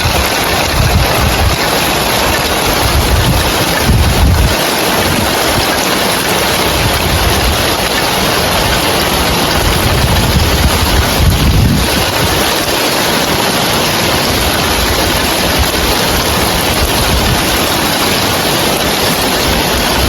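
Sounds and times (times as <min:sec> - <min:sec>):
heavy rain on roof tiles: 0:00.0 - 0:20.0
wind rumbling on microphone: 0:00.0 - 0:20.0.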